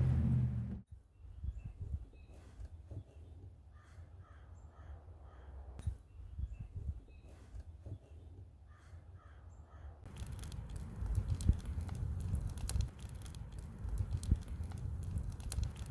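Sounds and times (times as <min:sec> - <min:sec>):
low rumbling with crackles: 0:00.0 - 0:00.8, 0:10.1 - 0:15.9
faint bird calls: 0:02.3 - 0:05.8, 0:07.2 - 0:10.0.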